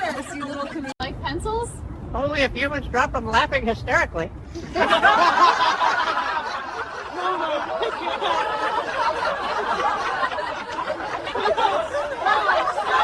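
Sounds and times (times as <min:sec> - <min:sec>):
people chuckling and laughing: 0:04.5 - 0:13.0.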